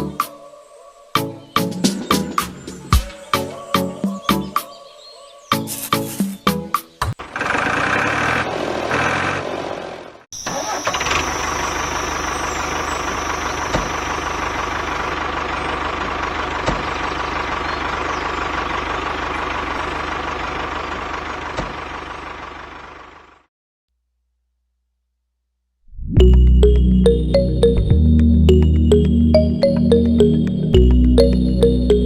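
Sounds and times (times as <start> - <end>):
background music: 0.0 - 7.0, 26.2 - 32.0
engine running with low hum: 7.2 - 23.5, 26.2 - 32.0.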